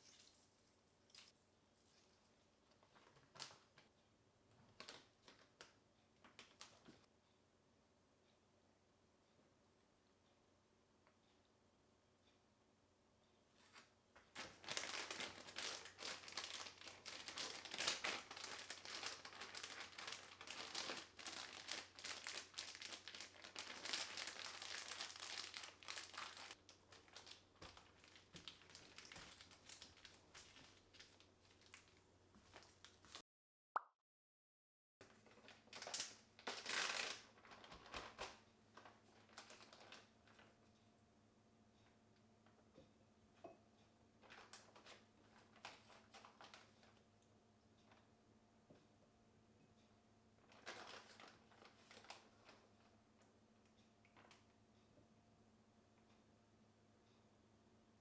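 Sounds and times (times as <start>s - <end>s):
crinkling and rustling: 0.0s - 7.1s, 13.6s - 33.2s, 35.0s - 40.7s, 44.2s - 47.1s, 50.4s - 53.3s, 54.0s - 54.6s.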